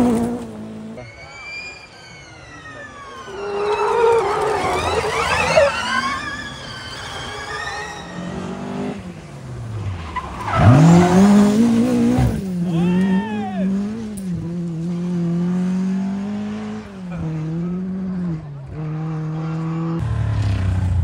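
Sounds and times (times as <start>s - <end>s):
rally car engine revving: 0.0s - 1.9s, 2.9s - 21.0s
tyres squealing: 1.0s - 8.5s.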